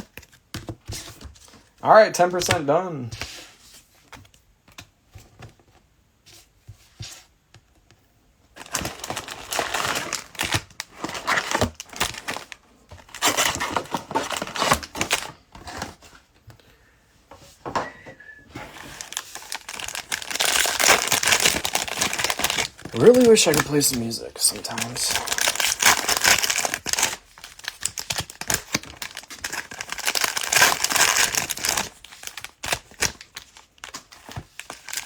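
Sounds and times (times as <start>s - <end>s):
plastic wrappers crinkling and tearing: 8.6s - 15.8s, 18.6s - 35.0s.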